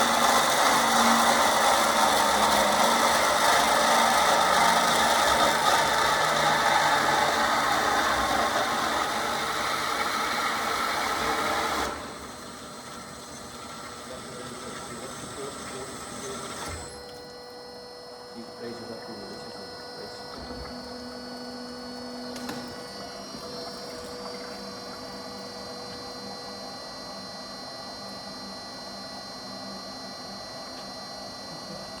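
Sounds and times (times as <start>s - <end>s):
bandsaw running with rattle: 0.0s - 16.9s.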